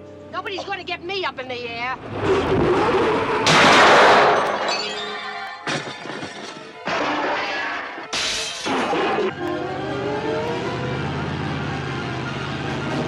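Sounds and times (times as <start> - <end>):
loud crash hits: 3.4 - 4.8
film soundtrack music: 5.2 - 13.0.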